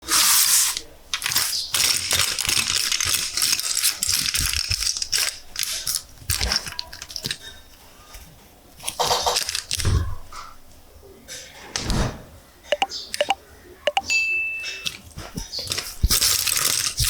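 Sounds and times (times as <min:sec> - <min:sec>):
plastic bricks clattering: 0:15.6 - 0:17.0.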